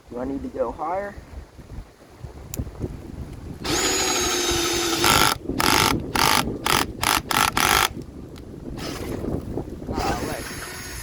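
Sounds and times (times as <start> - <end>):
cordless drill motor whining: 3.6 - 8.0, 8.8 - 9.2, 10.0 - 11.0.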